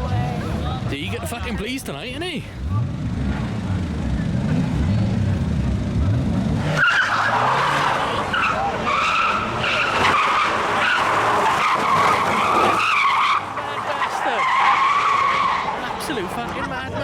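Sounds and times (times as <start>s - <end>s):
car engine revving: 0.0s - 17.0s
tyres squealing: 6.7s - 16.7s.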